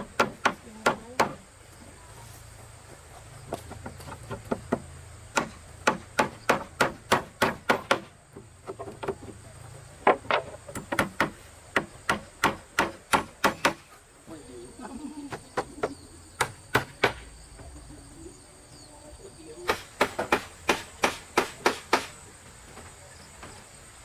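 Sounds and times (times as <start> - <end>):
tool knocking on wood: 3.6 - 9.4, 10.0 - 13.8, 19.7 - 22.2.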